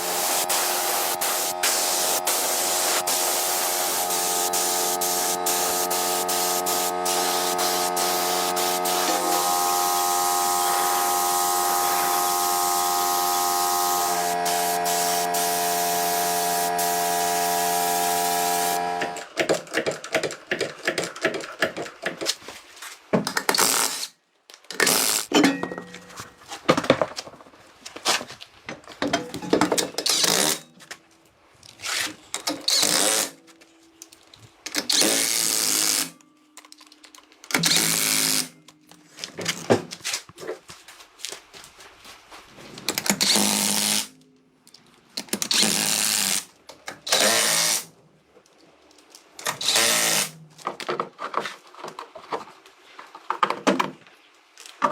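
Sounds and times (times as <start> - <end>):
power tool running in bursts: 0.0 - 19.3.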